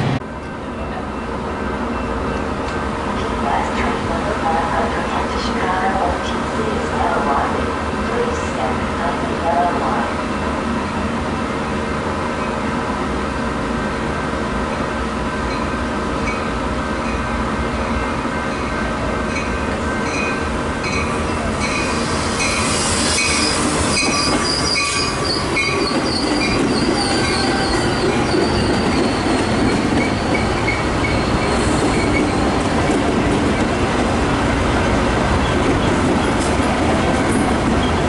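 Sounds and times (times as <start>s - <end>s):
train rumbling along track: 0.0s - 38.0s
squealing train wheels: 17.9s - 34.0s, 35.4s - 38.0s.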